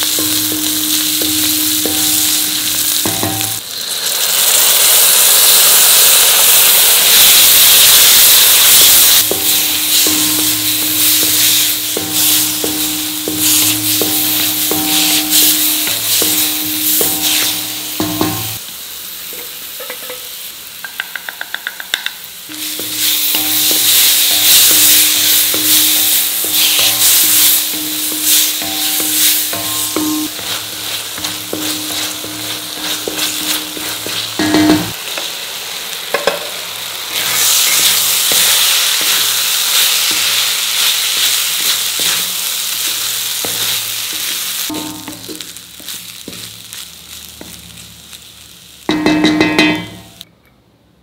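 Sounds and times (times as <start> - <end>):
masala sizzling in a pan: 0.0 - 50.2
spatula scraping pan: 22.5 - 35.0, 37.2 - 46.4
rice tossed with spatula: 22.5 - 35.4, 37.1 - 47.6.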